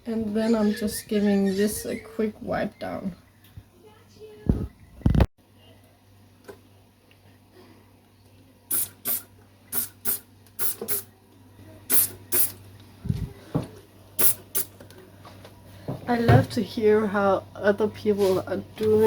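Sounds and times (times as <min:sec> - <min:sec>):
spray bottle squirting: 0:08.7 - 0:11.1, 0:11.9 - 0:12.6, 0:14.2 - 0:14.7.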